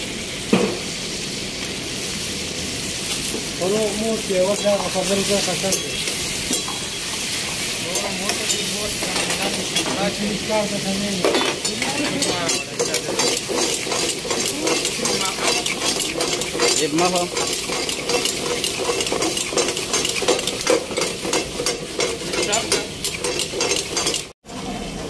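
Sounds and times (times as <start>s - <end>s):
meat sizzling in a pan: 0.0s - 24.9s
metal ladles scraping pan: 3.8s - 24.3s.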